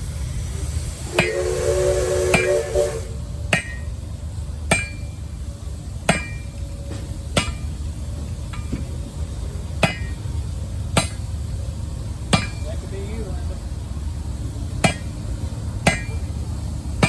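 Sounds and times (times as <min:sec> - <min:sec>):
steady low rumble: 0:00.0 - 0:17.0
hammer striking metal on anvil: 0:03.5 - 0:03.9, 0:04.7 - 0:05.1, 0:06.1 - 0:06.5, 0:07.4 - 0:07.7, 0:09.8 - 0:10.2, 0:11.0 - 0:11.2, 0:12.3 - 0:12.7, 0:14.8 - 0:15.1, 0:15.8 - 0:16.2.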